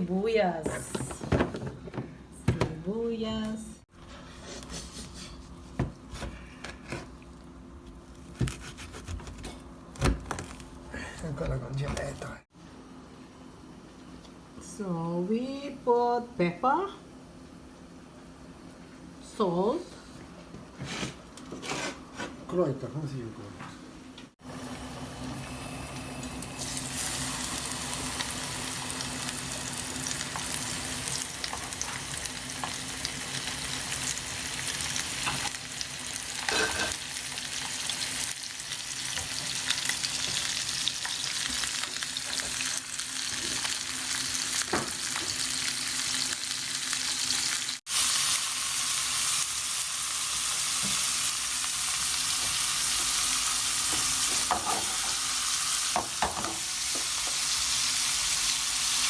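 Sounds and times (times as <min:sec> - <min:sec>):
chicken sizzling in a pan: 0:24.5 - 0:59.0
frying crackles: 0:24.5 - 0:59.0.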